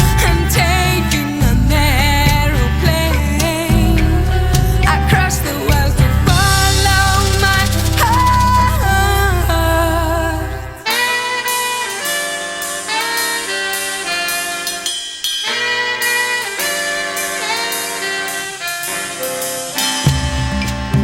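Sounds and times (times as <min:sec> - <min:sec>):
low bass drone: 0:00.0 - 0:10.8
saxophone and brass playing jazz: 0:00.0 - 0:21.0.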